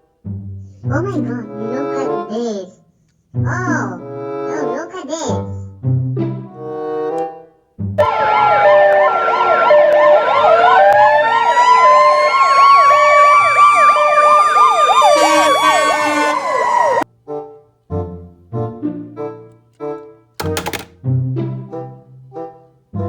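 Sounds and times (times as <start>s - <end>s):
siren fast yelp: 8.0s - 17.0s
two-tone hi-lo siren: 8.0s - 17.0s
wailing siren: 8.0s - 17.0s.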